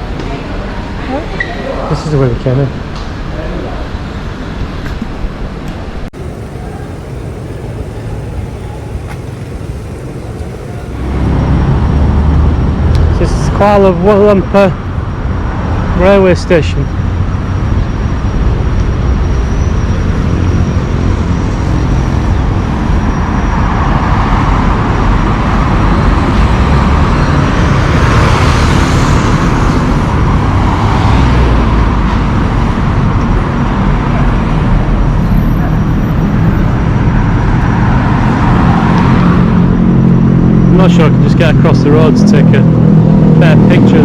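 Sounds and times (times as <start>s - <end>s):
road traffic passing: 0.0s - 44.0s
loud vehicle passing: 6.2s - 13.9s, 20.0s - 44.0s.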